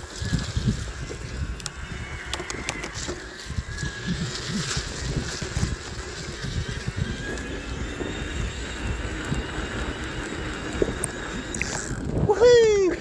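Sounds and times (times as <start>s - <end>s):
tyres rumbling on rough track: 0.0s - 13.0s
bike frame rattling: 4.2s - 13.0s.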